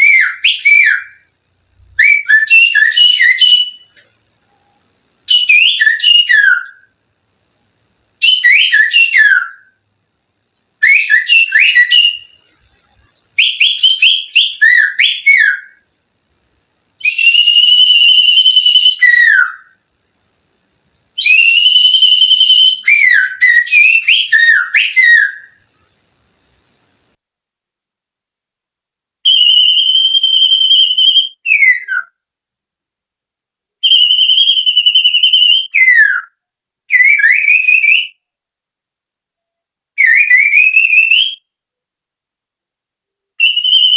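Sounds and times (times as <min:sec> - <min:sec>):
finger whistling birdsong: 0:00.0 - 0:06.9, 0:08.2 - 0:09.8, 0:10.5 - 0:15.8, 0:17.0 - 0:19.8, 0:21.2 - 0:25.9, 0:29.3 - 0:32.2, 0:33.8 - 0:38.2, 0:40.0 - 0:41.5, 0:43.4 - 0:43.9.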